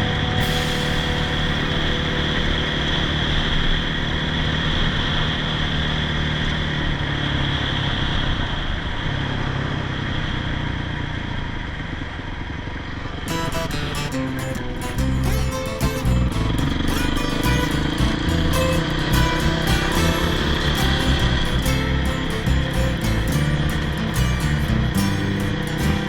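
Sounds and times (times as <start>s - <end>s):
motorcycle engine running: 13.3s - 26.0s.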